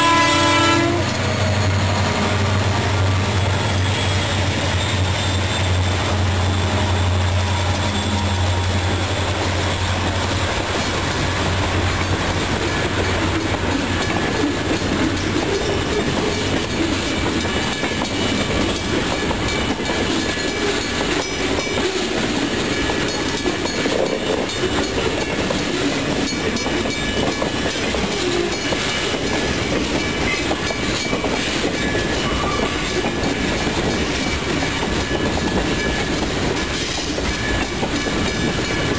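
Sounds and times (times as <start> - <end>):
train wheels clacking on rails: 0.0 - 38.9
locomotive engine drone: 0.1 - 20.0.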